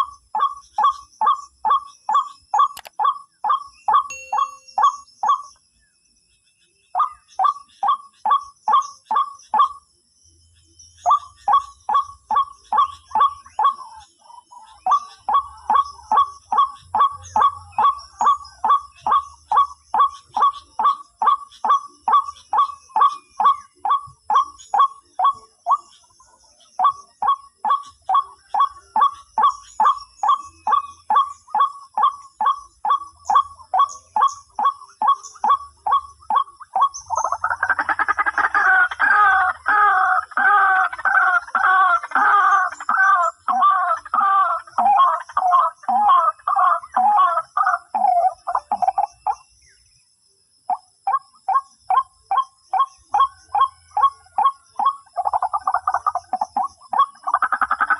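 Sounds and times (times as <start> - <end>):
waterhen hoarse call: 37.4 - 48.7.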